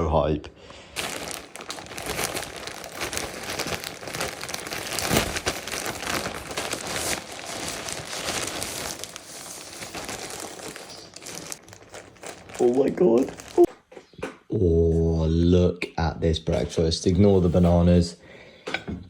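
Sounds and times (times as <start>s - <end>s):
packaging crinkling and rustling: 1.0s - 13.7s
packaging crunch: 1.0s - 13.7s.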